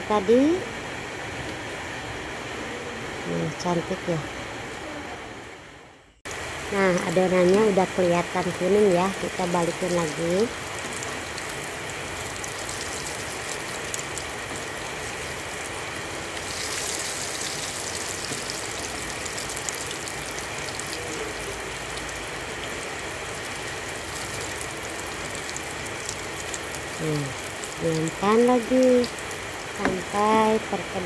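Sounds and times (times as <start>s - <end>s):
fritters frying in hot oil: 6.4s - 31.0s.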